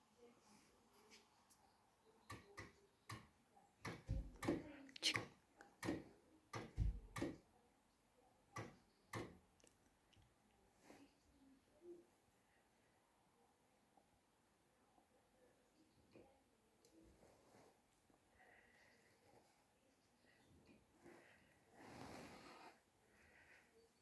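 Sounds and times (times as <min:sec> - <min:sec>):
irregular clicks and knocks: 0:02.3 - 0:07.4, 0:08.6 - 0:09.4.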